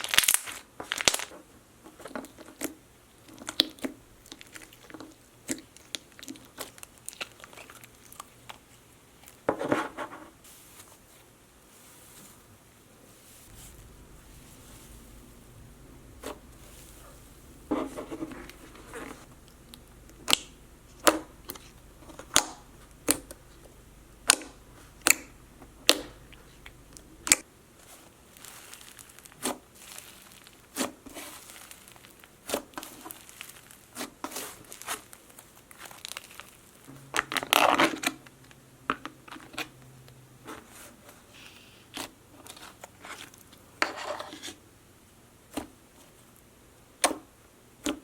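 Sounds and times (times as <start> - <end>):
slime crinkling: 0.0 - 1.4, 2.0 - 9.4, 13.1 - 38.3
slime clicking and popping: 19.5 - 23.4, 24.2 - 27.4.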